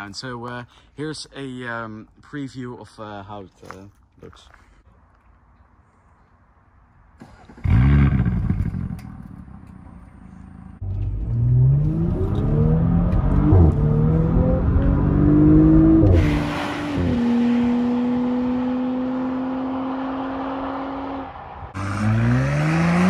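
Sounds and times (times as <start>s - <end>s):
car engine accelerating: 10.2s - 23.0s
car engine revving: 10.3s - 23.0s.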